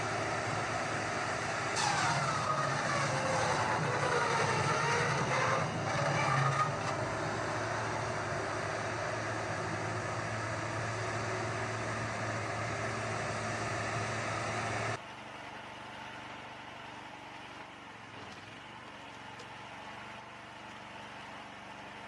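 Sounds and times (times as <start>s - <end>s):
engine running with low hum: 0.0s - 22.0s.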